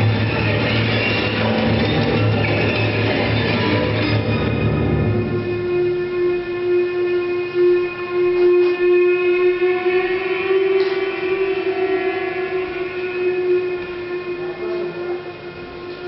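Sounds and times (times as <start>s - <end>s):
long steady horn-like tone: 4.7s - 16.0s.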